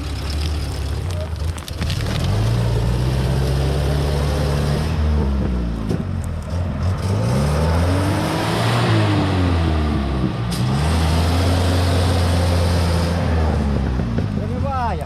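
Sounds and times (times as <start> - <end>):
off-road engine revving under load: 2.2 - 14.4.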